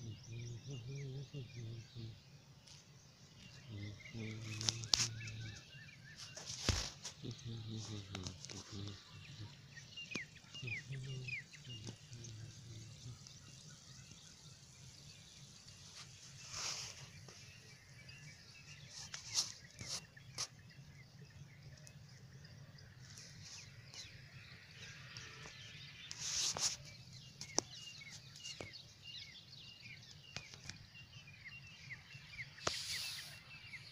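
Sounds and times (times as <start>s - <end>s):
small birds chirping: 0.0s - 33.9s
brief hissing bursts: 32.6s - 33.6s.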